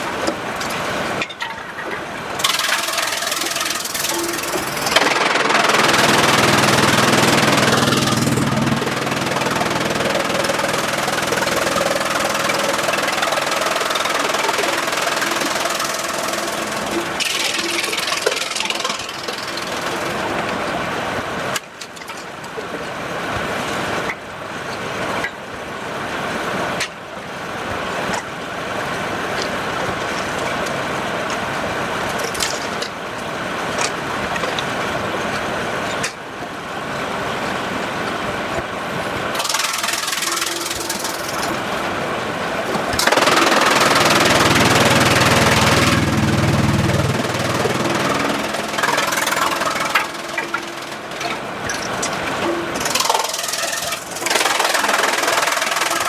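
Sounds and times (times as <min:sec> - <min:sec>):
sawmill machinery running: 0:00.0 - 0:22.4, 0:23.0 - 0:56.0.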